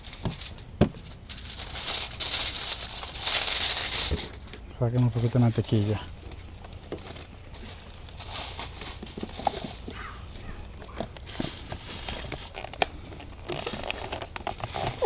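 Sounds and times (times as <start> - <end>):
rustling of food and foil: 0.0 - 15.0.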